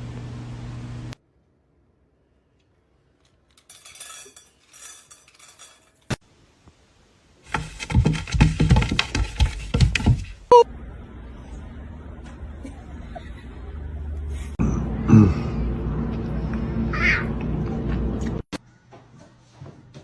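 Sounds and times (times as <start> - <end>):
light clinking: 3.2 - 6.2
hard objects clattering: 3.3 - 6.2, 7.5 - 10.4.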